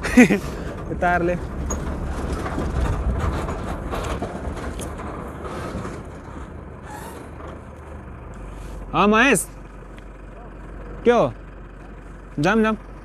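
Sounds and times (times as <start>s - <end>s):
knocks and rattles: 0.0s - 12.0s
truck engine and road rumble: 0.0s - 13.0s.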